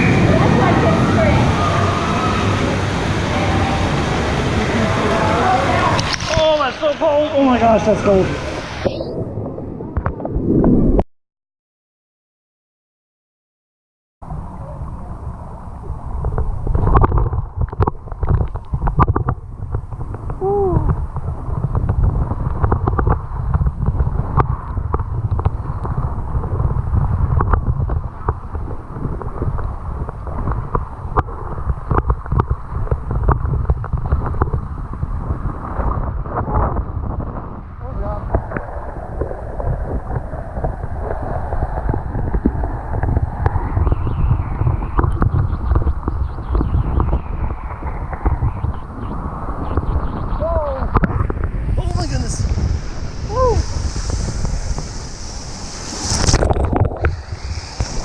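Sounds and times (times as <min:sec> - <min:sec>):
loud noisy swell: 0:00.0 - 0:09.8, 0:37.8 - 0:58.0
wind buffeting microphone: 0:00.0 - 0:11.0, 0:14.2 - 0:58.0
rising and falling pitched sound: 0:43.4 - 0:58.0.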